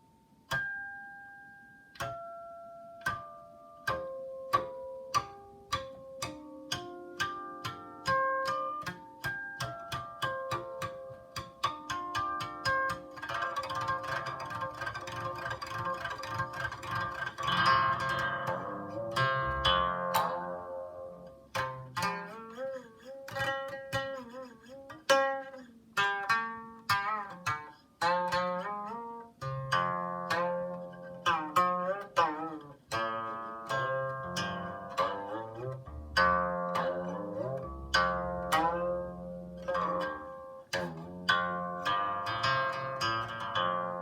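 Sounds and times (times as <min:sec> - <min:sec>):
plucked zither music: 0:00.0 - 0:01.0, 0:01.9 - 0:44.0.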